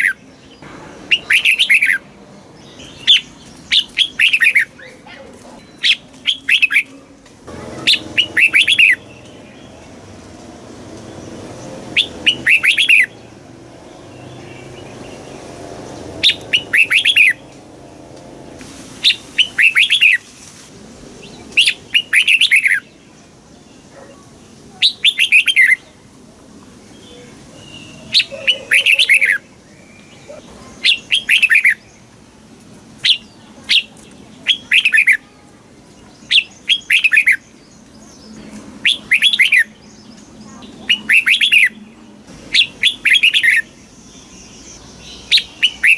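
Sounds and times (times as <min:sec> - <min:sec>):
bird singing whistled notes: 0:05.6 - 0:06.9, 0:07.9 - 0:09.8, 0:11.9 - 0:13.2, 0:16.2 - 0:17.4, 0:36.2 - 0:41.8, 0:42.5 - 0:45.9.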